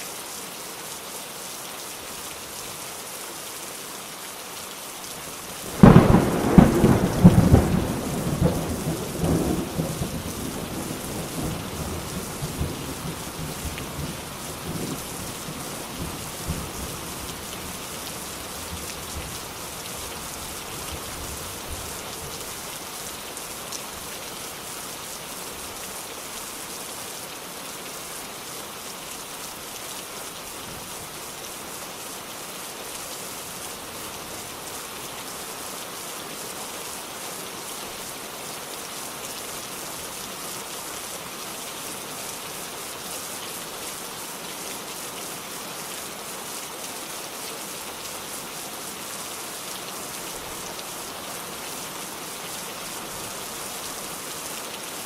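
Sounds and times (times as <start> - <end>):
steady rain falling: 0.0 - 55.0
low thunder rumble: 5.7 - 13.2.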